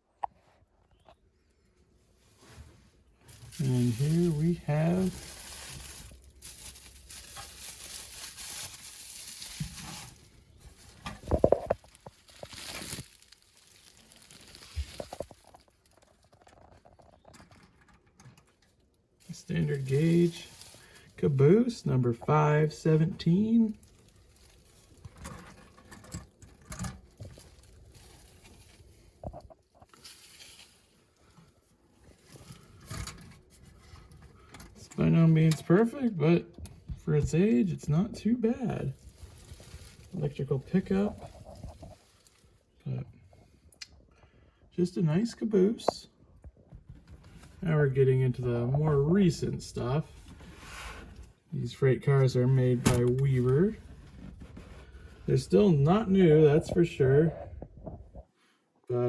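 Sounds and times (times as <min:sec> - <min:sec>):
packing material rustling: 0:02.4 - 0:17.0, 0:19.2 - 0:21.8, 0:23.3 - 0:31.4, 0:38.8 - 0:42.6.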